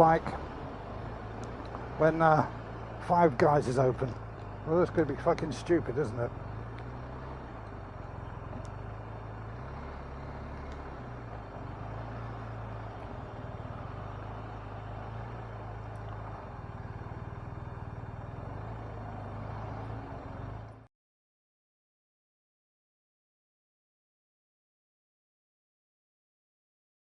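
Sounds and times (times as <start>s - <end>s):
motorcycle engine running: 0.0s - 20.8s
road and traffic noise: 0.0s - 20.9s.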